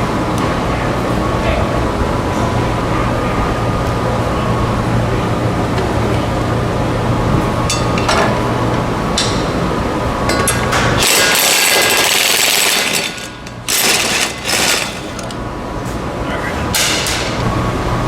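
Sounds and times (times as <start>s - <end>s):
impact wrench hammering: 10.3s - 15.4s.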